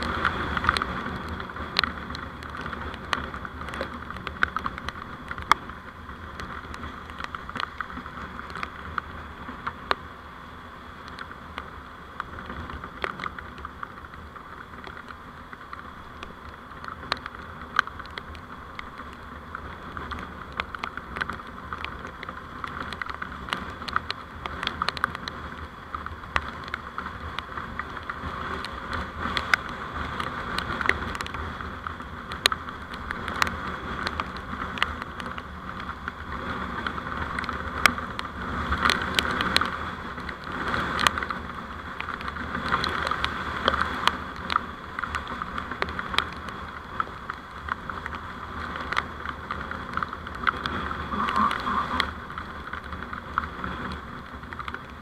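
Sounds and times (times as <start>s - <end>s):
vehicle road and engine noise: 0.0s - 55.0s
sharp ticks: 50.0s - 53.5s.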